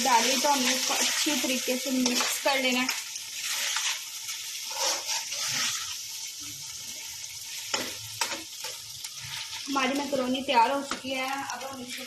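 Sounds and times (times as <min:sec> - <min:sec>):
food sizzling in a frying pan: 0:00.0 - 0:12.0
utensil scraping a pan: 0:04.6 - 0:06.0.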